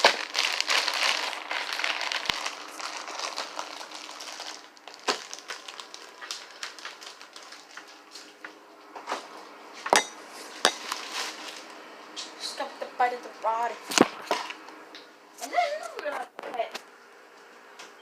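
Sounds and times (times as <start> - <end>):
plastic packaging crinkling: 0.0 - 8.4, 10.6 - 11.7.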